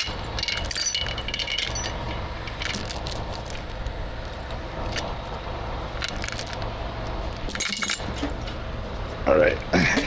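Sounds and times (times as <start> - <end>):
metallic clinks: 0.0 - 3.6, 7.5 - 8.3
truck engine rumbling: 0.0 - 10.0.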